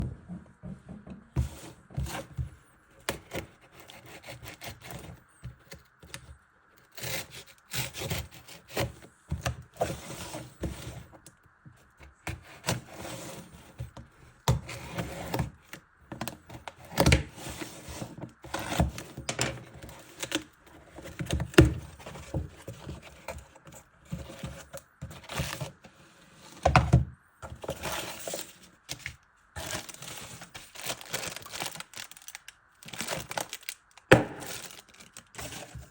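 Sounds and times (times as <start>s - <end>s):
cardboard box being handled: 27.4s - 35.9s.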